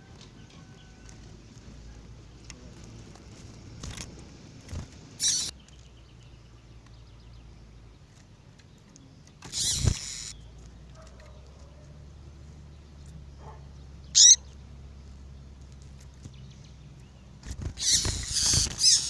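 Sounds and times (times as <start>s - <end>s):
bird sharp calls: 5.2s - 6.0s, 9.4s - 11.9s, 13.4s - 14.6s, 16.5s - 19.0s.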